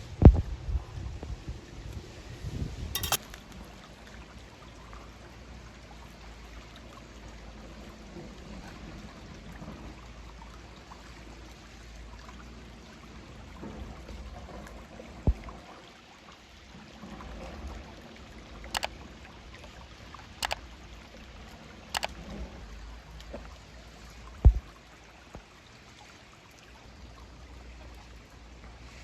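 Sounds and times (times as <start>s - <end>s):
sharp clicks: 3.0s - 3.2s.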